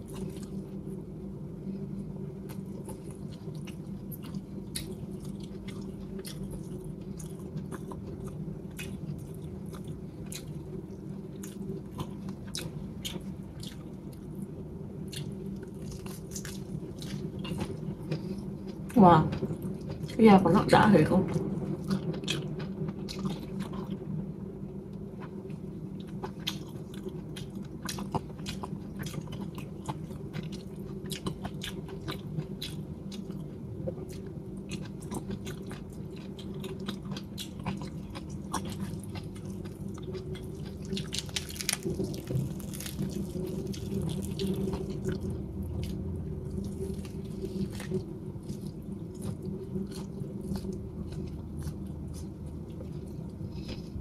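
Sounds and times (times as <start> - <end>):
chewing and biting chicken: 11.4 - 14.3, 26.0 - 54.0.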